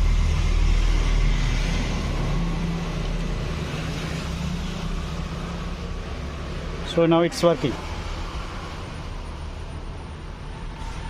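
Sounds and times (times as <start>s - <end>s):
car engine idling: 0.0s - 10.8s.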